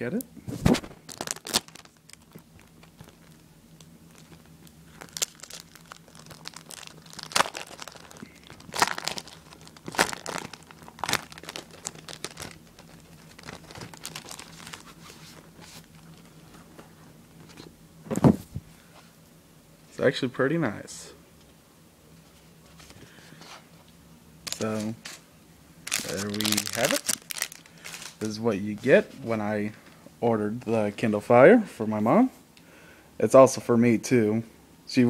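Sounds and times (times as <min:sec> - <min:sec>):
packaging crinkling and rustling: 0:00.6 - 0:16.5, 0:24.5 - 0:25.2, 0:25.8 - 0:28.9.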